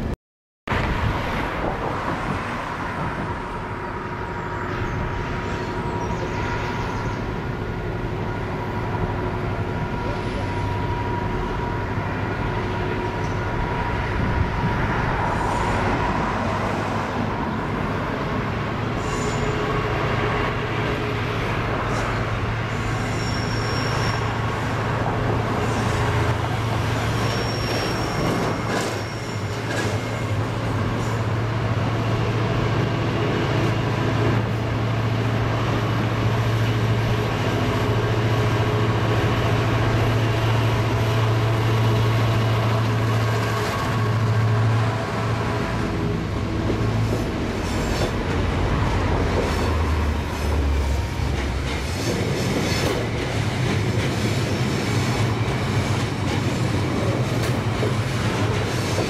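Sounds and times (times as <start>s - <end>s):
diesel locomotive engine drone: 0.7s - 59.0s
high wheel squeal: 19.0s - 19.8s, 21.9s - 24.8s, 26.8s - 30.3s.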